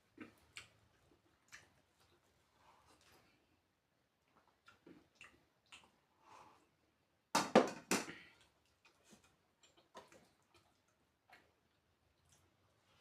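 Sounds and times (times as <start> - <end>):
mouth smacks while eating: 4.3 - 6.1.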